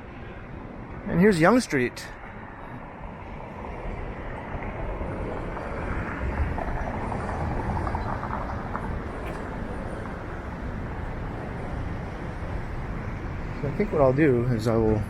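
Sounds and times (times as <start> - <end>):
motor vehicle passing: 3.2 - 13.8.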